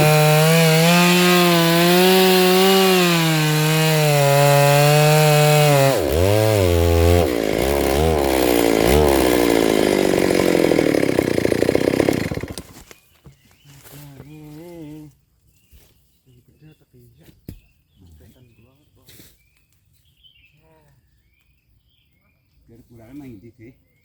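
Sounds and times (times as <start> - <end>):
chainsaw cutting log: 0.0 - 13.0.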